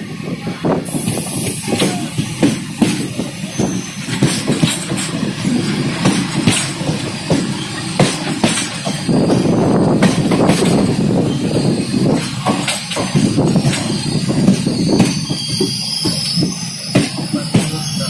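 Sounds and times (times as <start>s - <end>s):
train coaches rumbling: 0.0s - 18.0s
wheels clicking over rail joints: 1.0s - 18.0s.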